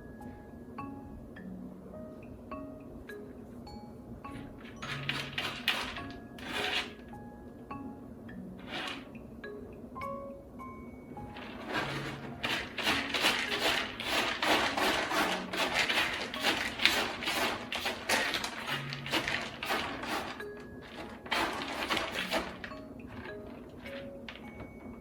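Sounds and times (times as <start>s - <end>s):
rustling noise: 4.4s - 7.1s, 8.6s - 9.2s, 11.3s - 25.0s.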